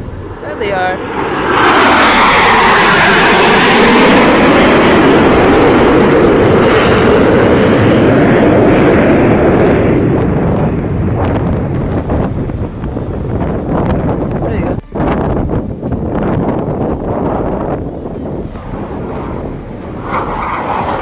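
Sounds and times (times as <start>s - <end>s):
jets roaring past: 0.0s - 21.0s.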